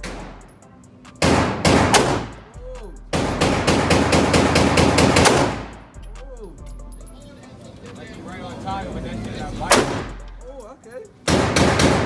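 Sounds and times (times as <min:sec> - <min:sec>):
rapid gunshots: 0:01.2 - 0:02.4, 0:03.1 - 0:05.8, 0:09.7 - 0:10.2, 0:11.3 - 0:12.0.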